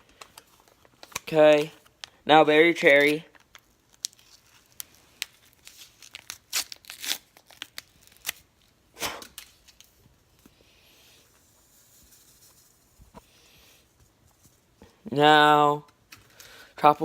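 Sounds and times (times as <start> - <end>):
packet crinkling and tearing: 0.1 - 10.0
faint soft hiss: 9.0 - 16.8.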